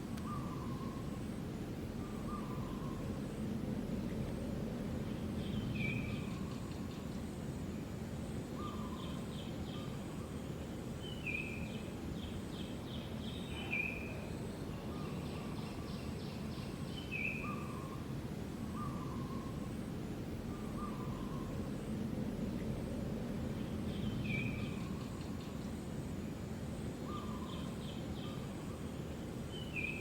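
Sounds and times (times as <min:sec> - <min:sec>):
low background rumble: 0:00.0 - 0:13.5, 0:14.2 - 0:29.5.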